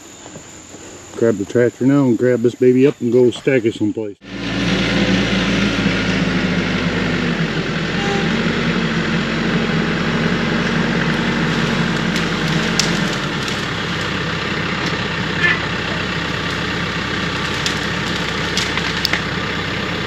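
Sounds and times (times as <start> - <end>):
tractor diesel engine running: 4.2 - 20.0.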